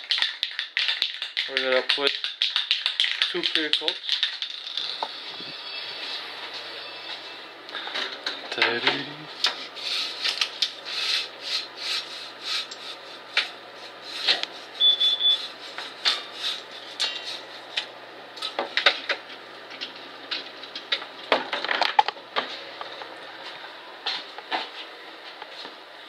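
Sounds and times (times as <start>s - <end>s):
spray can ball rattling: 0.0s - 5.0s.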